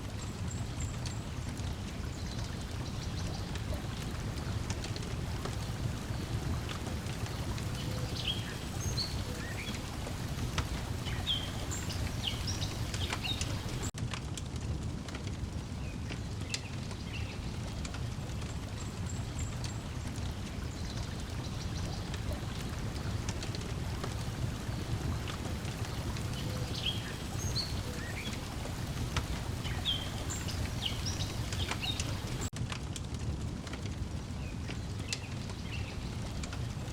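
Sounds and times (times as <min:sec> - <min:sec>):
water lapping at shore: 0:00.0 - 0:14.0, 0:16.2 - 0:32.5
small birds chirping: 0:00.1 - 0:13.9, 0:18.5 - 0:32.5
wood fire crackling: 0:00.1 - 0:36.9.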